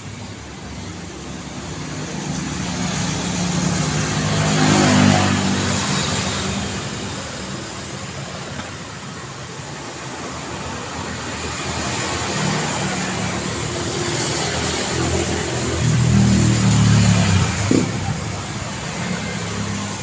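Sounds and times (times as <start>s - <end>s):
road noise hum: 0.0s - 20.0s
car passing close by: 1.9s - 7.2s, 11.5s - 20.0s.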